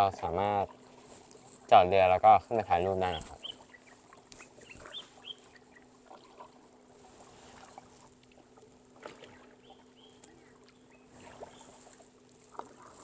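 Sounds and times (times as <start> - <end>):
paddle splashing in water: 3.0 - 13.0
water dripping from paddle: 7.6 - 13.0.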